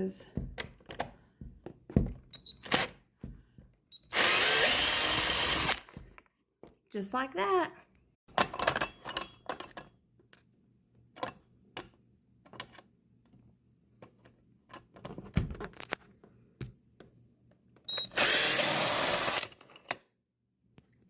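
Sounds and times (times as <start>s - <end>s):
cordless drill running: 4.0s - 5.9s, 17.9s - 19.5s.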